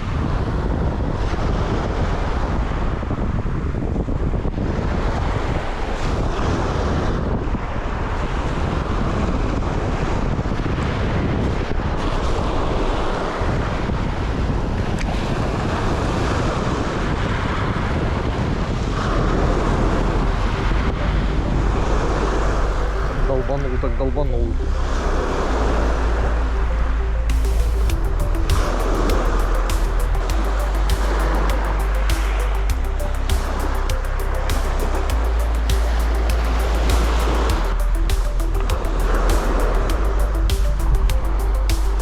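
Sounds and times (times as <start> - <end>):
wind buffeting microphone: 0.0 - 24.0
surf washing on shore: 0.0 - 42.0.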